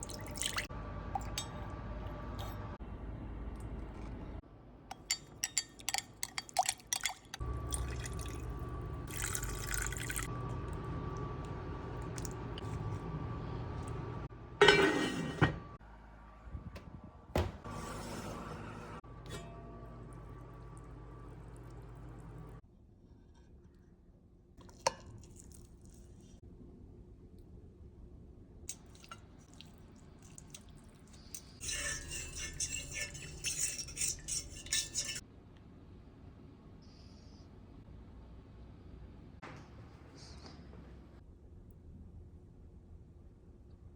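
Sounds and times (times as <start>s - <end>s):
low kitchen background: 0.0s - 43.9s
cookware clattering: 14.6s - 15.6s, 31.6s - 35.2s.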